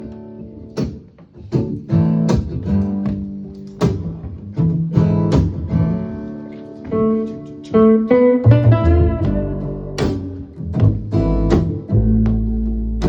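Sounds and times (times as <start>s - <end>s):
guitar chords ringing: 4.7s - 13.0s.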